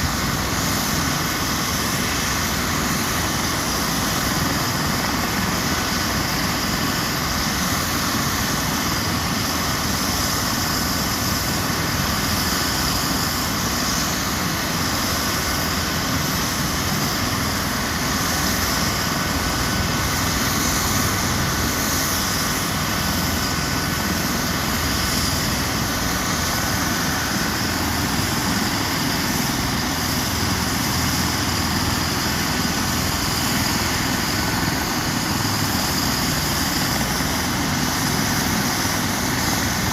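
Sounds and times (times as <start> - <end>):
helicopter running: 0.0 - 39.9.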